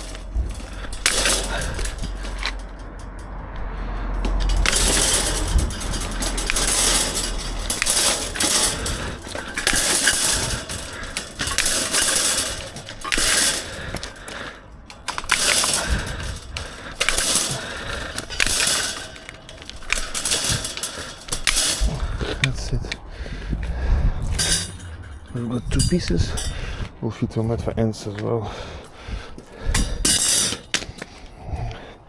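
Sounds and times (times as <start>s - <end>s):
steel mesh clattering and scraping: 0.0s - 27.0s, 28.8s - 31.2s.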